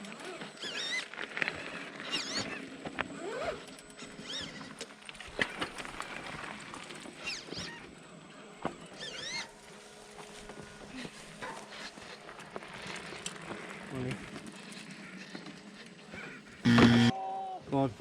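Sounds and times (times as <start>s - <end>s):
electric motor whining: 16.6s - 17.1s.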